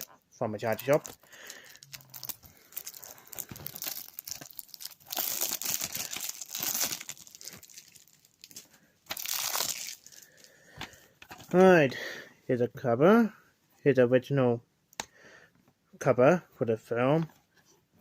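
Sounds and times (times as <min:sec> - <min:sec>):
plastic wrapping crinkling and tearing: 0:00.7 - 0:10.5.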